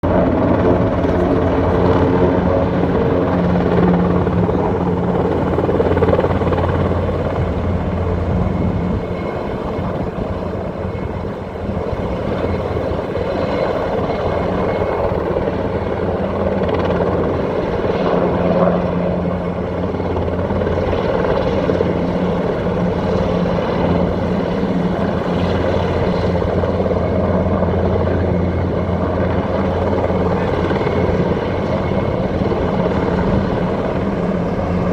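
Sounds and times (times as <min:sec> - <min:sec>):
helicopter rotor and turbine: 0:00.0 - 0:34.9.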